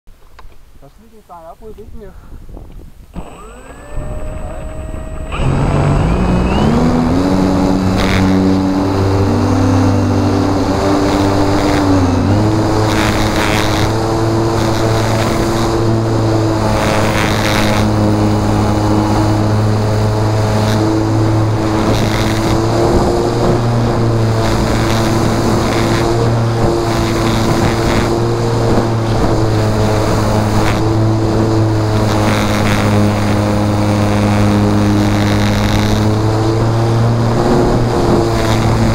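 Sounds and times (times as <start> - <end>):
wind noise on microphone: 0.4 - 38.9
electric motor and propeller whine: 2.6 - 38.9.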